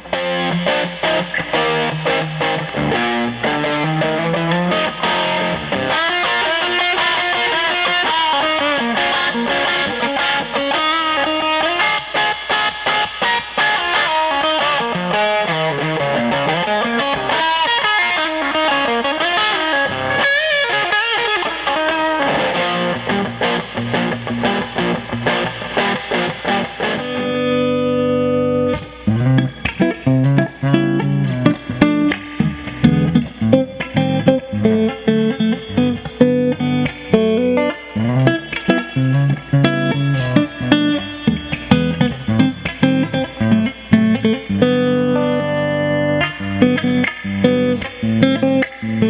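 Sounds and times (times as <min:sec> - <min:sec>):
electric guitar melody: 0:00.0 - 0:49.0.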